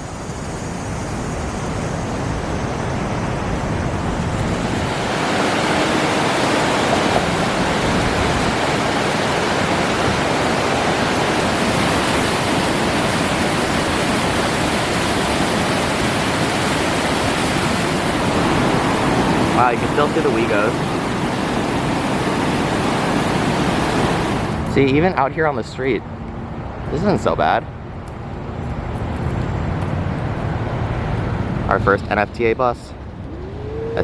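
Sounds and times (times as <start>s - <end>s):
waterfall rushing: 4.0s - 24.6s.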